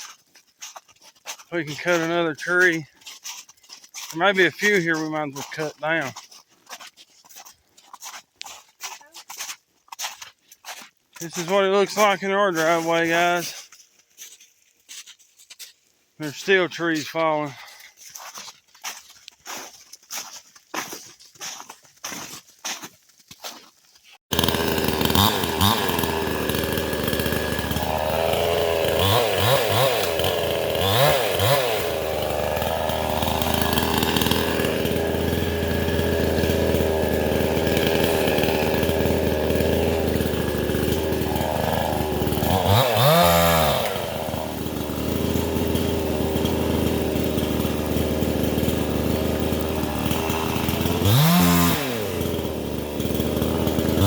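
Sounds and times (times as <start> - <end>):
chainsaw revving: 1.5 - 2.9, 4.0 - 6.2, 11.2 - 13.6, 24.3 - 54.0.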